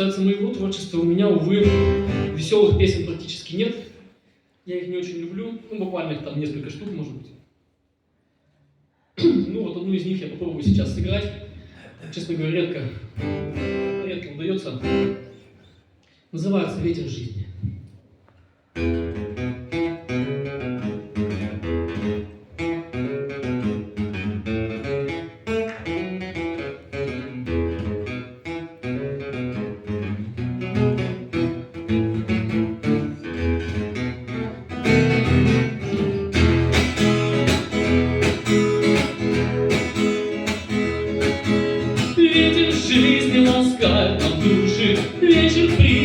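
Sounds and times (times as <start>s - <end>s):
guitar plucked notes and chords: 1.4s - 3.1s, 13.2s - 14.1s, 14.8s - 15.4s, 18.8s - 46.0s
person singing: 42.0s - 46.0s.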